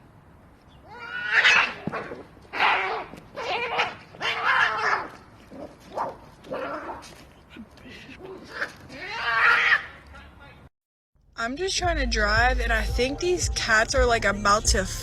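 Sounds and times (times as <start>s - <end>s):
cats screeching yowls: 0.8s - 5.1s, 8.5s - 9.9s.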